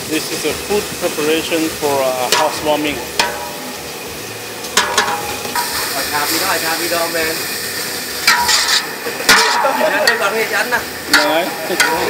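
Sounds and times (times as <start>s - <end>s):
food sizzling in hot oil: 0.0s - 12.0s
utensil knock: 3.2s - 3.6s, 4.8s - 5.8s.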